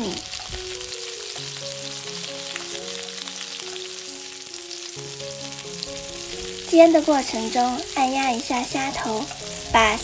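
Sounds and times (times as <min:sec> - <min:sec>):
prawns sizzling in hot oil: 0:00.0 - 0:10.0
soft melodic background music: 0:00.0 - 0:10.0.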